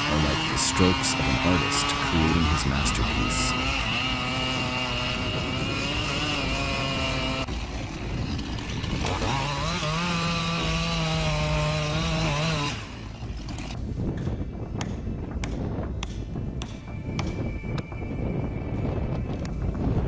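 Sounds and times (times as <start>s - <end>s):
chainsaw engine revving: 0.0s - 13.8s.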